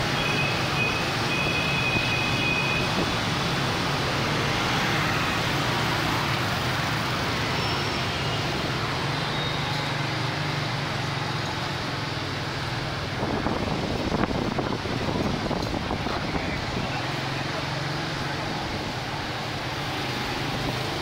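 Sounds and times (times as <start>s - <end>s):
road noise: 0.0s - 21.0s
motorcycle engines running: 2.8s - 21.0s.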